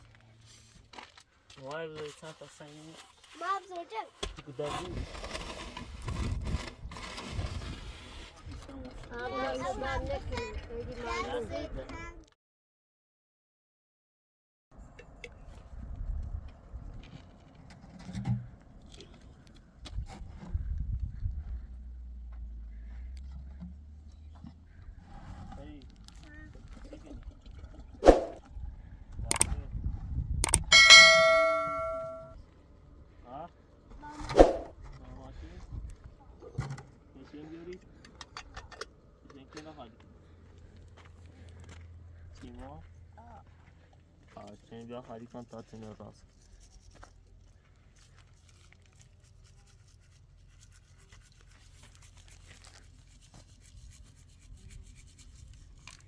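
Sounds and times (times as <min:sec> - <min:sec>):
small ticks and scrapes: 0:00.0 - 0:10.5, 0:15.0 - 0:21.7, 0:22.3 - 0:28.0, 0:43.4 - 0:56.0
sharp clicks: 0:29.3 - 0:29.5, 0:30.4 - 0:30.7
metal object struck ringing: 0:30.6 - 0:32.4.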